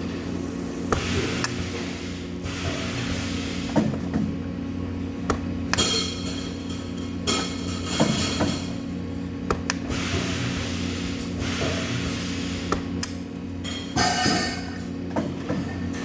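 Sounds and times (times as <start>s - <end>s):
electrical hum of machinery: 0.0s - 16.0s
metal parts knocking and clanking: 5.7s - 8.7s.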